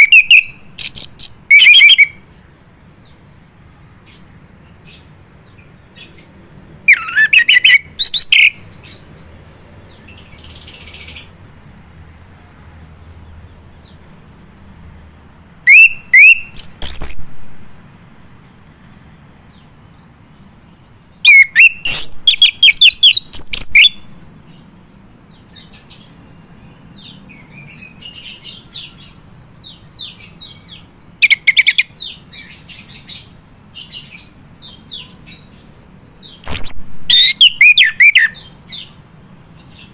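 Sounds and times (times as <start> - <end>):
thrush singing whistled phrases: 0.0 - 2.2, 6.9 - 8.7, 15.7 - 17.6, 21.2 - 24.1, 36.4 - 38.4.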